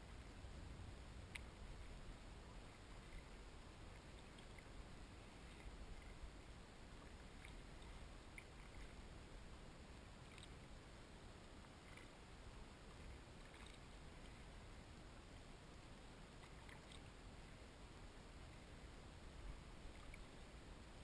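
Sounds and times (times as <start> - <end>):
water washing around kayak: 0.0 - 21.0
soft ticks: 1.3 - 2.0, 2.8 - 4.7, 5.4 - 6.4, 7.0 - 9.0, 10.2 - 10.7, 11.6 - 12.2, 12.9 - 14.5, 16.3 - 17.1, 19.9 - 20.5.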